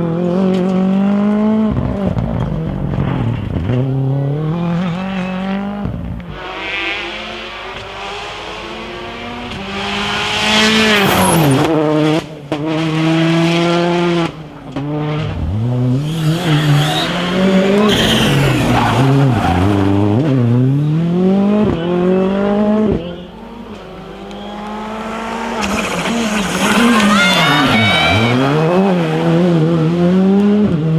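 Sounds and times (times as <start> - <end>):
rally car engines revving: 0.0 - 30.9
tyre noise: 13.5 - 30.3.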